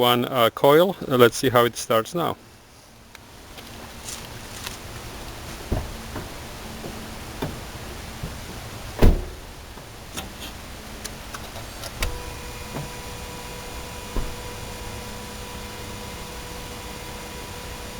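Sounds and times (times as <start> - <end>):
steady whine: 2.5 - 17.9
loud thump: 5.6 - 6.4, 9.0 - 9.5, 14.1 - 14.5.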